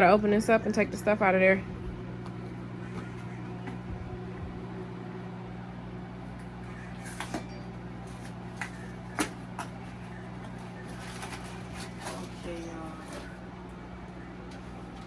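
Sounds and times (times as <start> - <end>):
steady low hum: 0.0 - 15.0
packets clicking and crinkling: 6.4 - 13.4.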